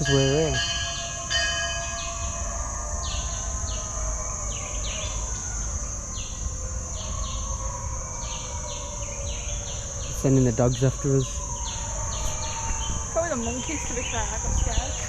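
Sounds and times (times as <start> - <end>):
high insect drone: 0.0 - 15.0
low wind rumble: 0.0 - 15.0.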